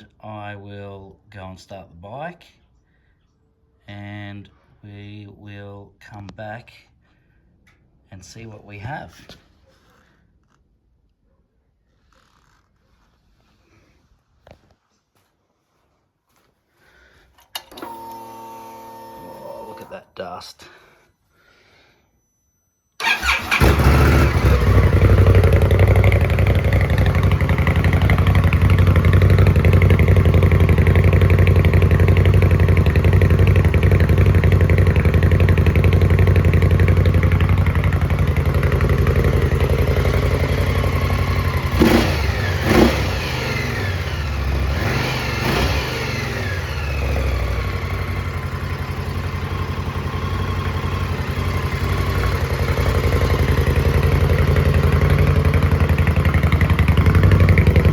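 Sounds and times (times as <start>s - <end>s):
motorcycle engine idling: 23.0s - 57.9s.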